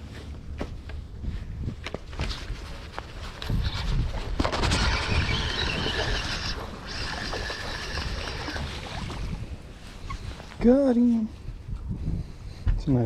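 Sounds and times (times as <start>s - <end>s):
fishing reel whirring: 4.5s - 9.5s.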